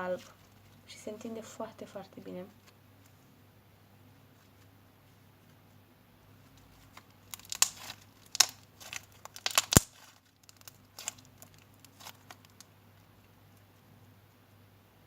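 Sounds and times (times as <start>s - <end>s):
slime crackles and pops: 6.9s - 12.7s.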